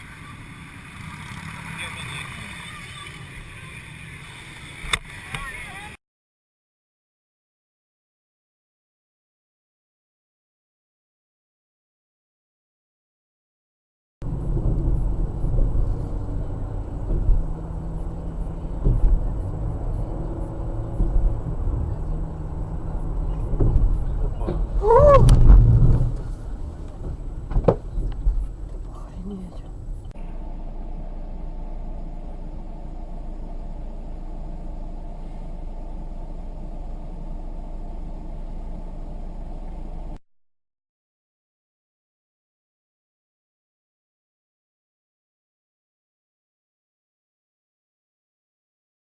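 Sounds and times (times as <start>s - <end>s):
road noise: 0.0s - 6.0s, 14.2s - 40.2s
vehicle engine rumble: 0.0s - 6.0s, 14.2s - 40.2s.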